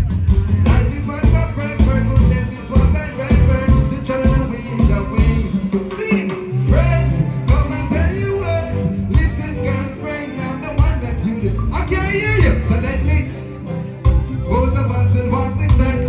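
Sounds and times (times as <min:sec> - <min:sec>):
live reggae band playing: 0:00.0 - 0:16.0
man singing: 0:00.0 - 0:16.0.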